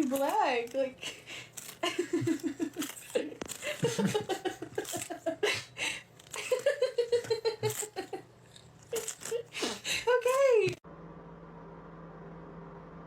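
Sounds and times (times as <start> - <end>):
person laughing: 1.0 - 8.3, 8.9 - 10.6.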